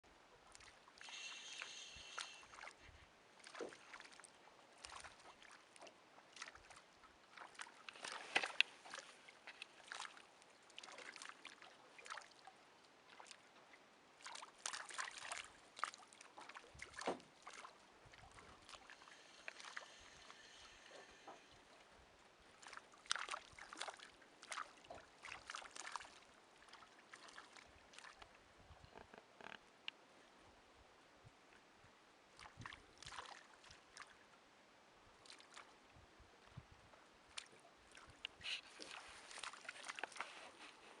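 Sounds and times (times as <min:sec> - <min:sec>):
fish splashing at water surface: 0:01.0 - 0:04.2.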